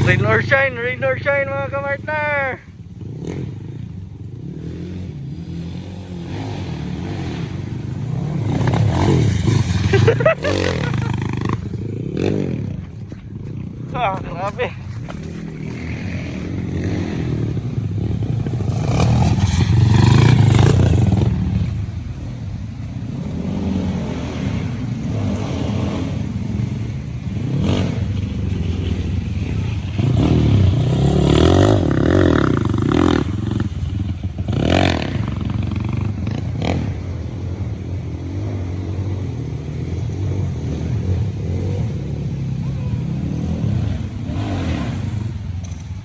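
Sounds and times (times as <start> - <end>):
motorcycle engines revving: 0.0 - 46.0.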